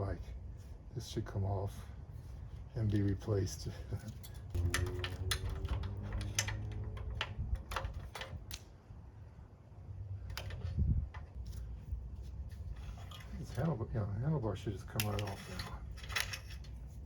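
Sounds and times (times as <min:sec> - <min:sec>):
clicks of hand tools and metal parts: 0:02.8 - 0:08.7, 0:10.2 - 0:11.8, 0:12.7 - 0:13.8, 0:14.8 - 0:17.0.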